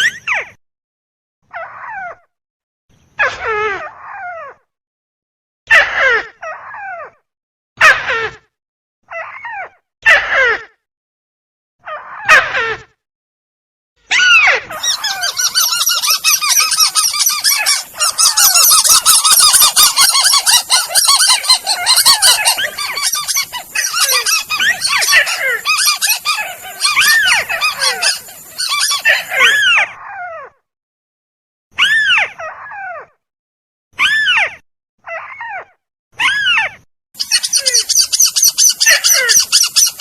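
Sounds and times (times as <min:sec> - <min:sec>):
chorus of rail bird calls: 0:14.2 - 0:30.0, 0:37.2 - 0:40.0.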